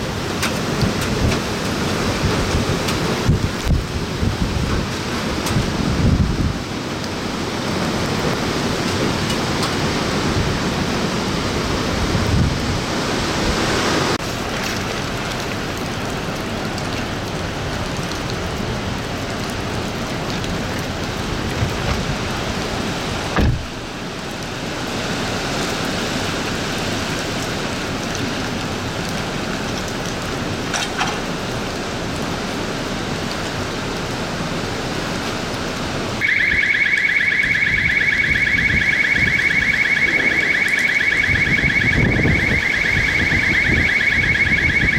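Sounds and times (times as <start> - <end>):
strong wind and driving rain: 0.0 - 44.9
car alarm pulsing tone: 36.2 - 44.9.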